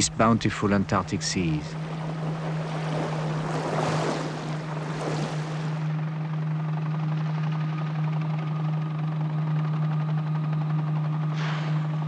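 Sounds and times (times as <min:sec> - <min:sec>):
helicopter engine and rotor drone: 0:05.8 - 0:12.0.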